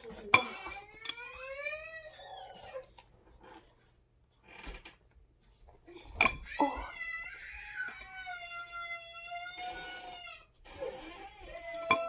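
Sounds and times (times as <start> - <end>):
dog whining: 0.5 - 3.6, 9.6 - 12.0.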